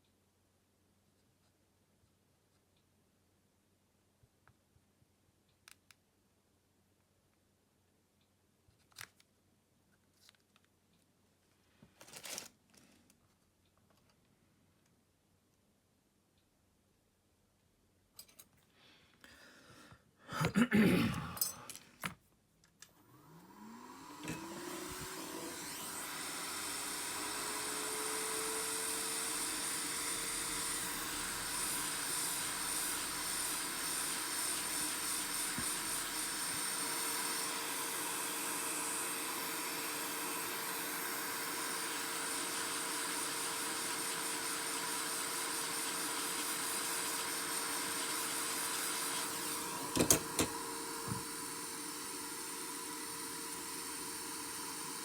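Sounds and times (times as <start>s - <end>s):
small electric motor whirring: 23.0s - 55.0s.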